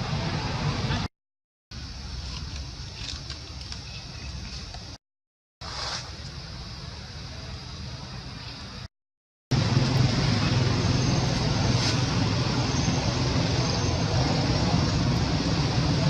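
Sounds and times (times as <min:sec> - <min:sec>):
noisy rumble with low hum: 0:09.5 - 0:16.0.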